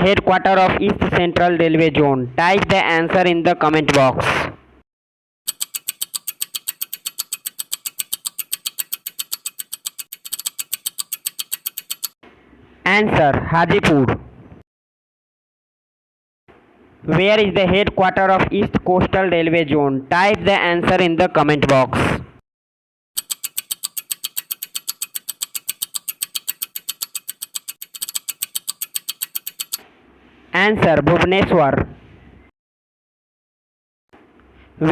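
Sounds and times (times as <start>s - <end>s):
rapid timer ticking: 5.5s - 12.2s, 23.2s - 29.8s.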